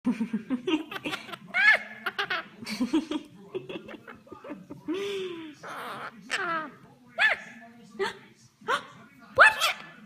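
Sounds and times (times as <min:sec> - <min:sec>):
parrot chattering and calling: 0:05.6 - 0:07.6, 0:09.4 - 0:10.0.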